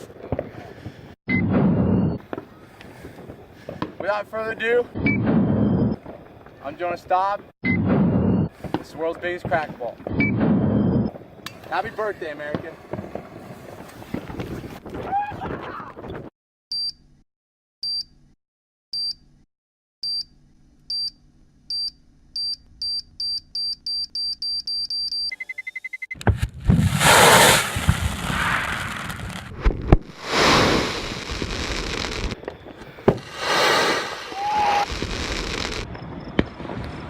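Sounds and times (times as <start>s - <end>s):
fireworks bangs: 8.0s - 15.6s, 26.2s - 37.0s
fireworks crackling: 11.3s - 15.0s, 26.2s - 37.0s
high electronic beeps: 21.8s - 26.2s.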